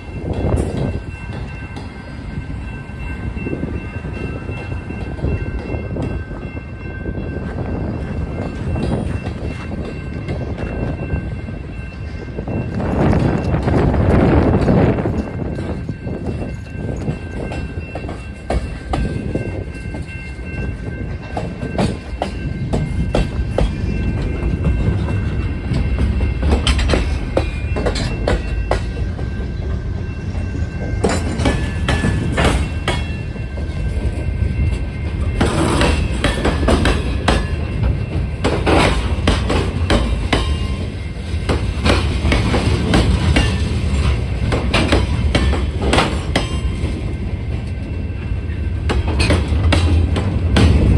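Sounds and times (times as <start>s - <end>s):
train cars rumbling past: 0.0s - 50.9s
wheels clacking over rail joints: 21.2s - 34.2s, 35.1s - 47.8s, 48.4s - 50.9s.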